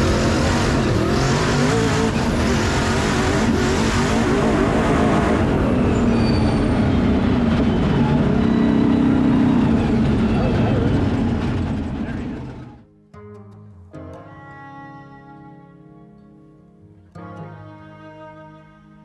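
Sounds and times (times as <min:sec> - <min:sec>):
sand car engine running: 0:00.0 - 0:12.8.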